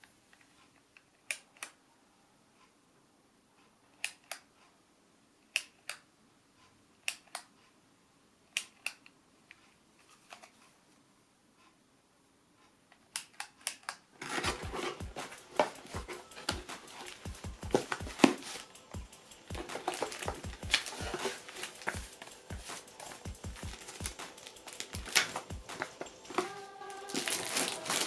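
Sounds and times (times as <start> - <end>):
background music with a beat: 14.3 - 28.0.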